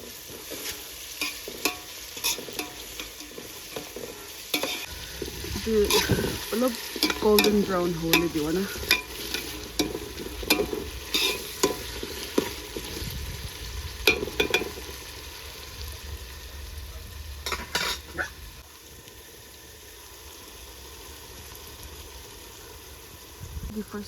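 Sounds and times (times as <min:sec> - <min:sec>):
utensil scraping a pan: 0:00.0 - 0:13.2, 0:17.4 - 0:18.3
food sizzling in hot oil: 0:00.0 - 0:24.0.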